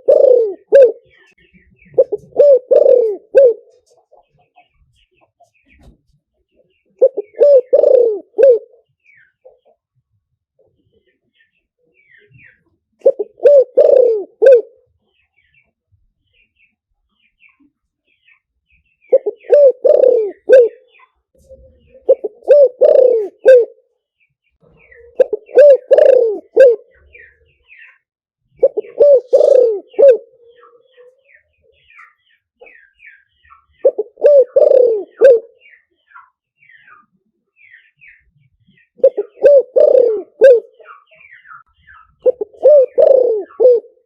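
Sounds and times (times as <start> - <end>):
dove cooing: 0.0 - 4.2, 6.9 - 8.9, 13.0 - 14.8, 19.1 - 23.8, 24.8 - 27.4, 28.6 - 32.8, 33.7 - 35.8, 38.9 - 44.0
small birds chirping: 0.0 - 44.0.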